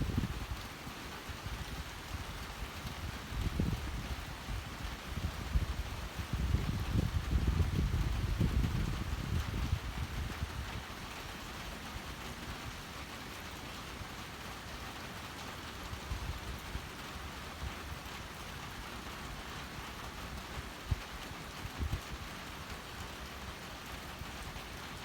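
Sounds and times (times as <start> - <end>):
gusts of wind: 0.0 - 0.7, 1.3 - 10.9
steady rain falling: 0.0 - 25.0.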